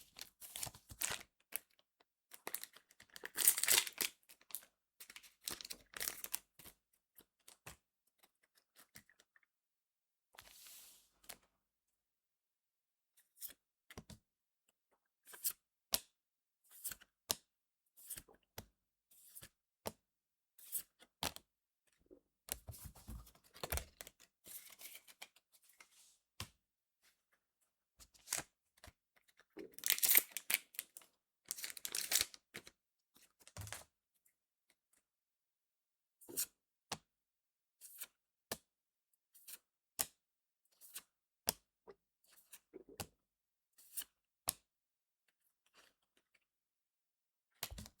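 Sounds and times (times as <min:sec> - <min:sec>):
pack wrapper tearing: 0:02.5 - 0:04.1, 0:29.7 - 0:30.9, 0:31.5 - 0:32.4.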